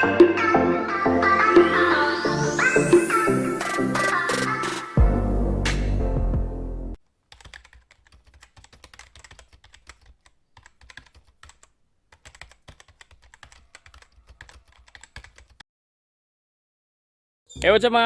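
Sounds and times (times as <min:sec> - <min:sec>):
electronic music: 0:00.0 - 0:07.0
keyboard typing clicks: 0:03.5 - 0:05.0, 0:07.3 - 0:15.6.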